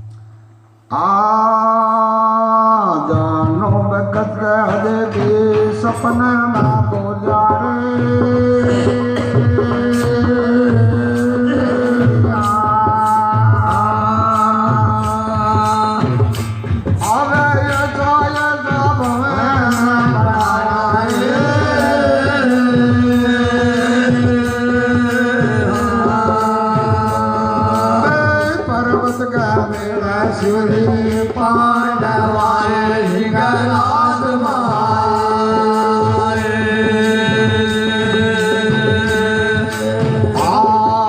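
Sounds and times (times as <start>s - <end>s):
sustained devotional melody: 0.0s - 41.0s
steady drum beat: 3.0s - 41.0s.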